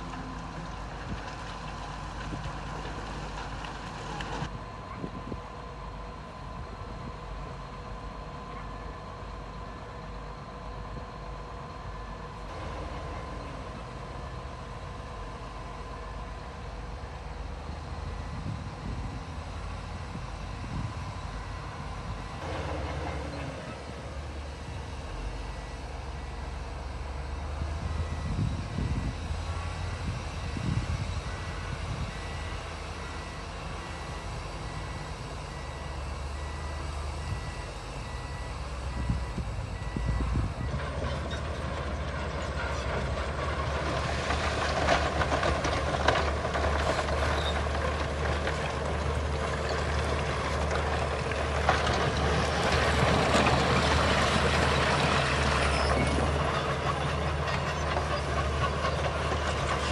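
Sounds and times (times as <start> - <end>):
diesel earthmoving machinery running: 0.0 - 59.9.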